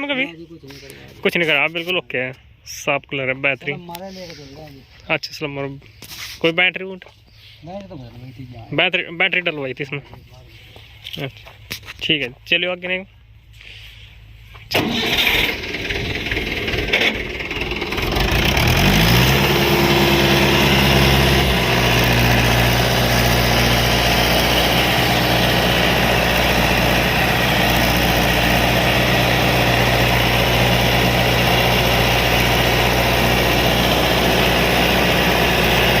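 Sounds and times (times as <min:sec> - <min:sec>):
tractor diesel engine revving: 0:14.7 - 0:36.0.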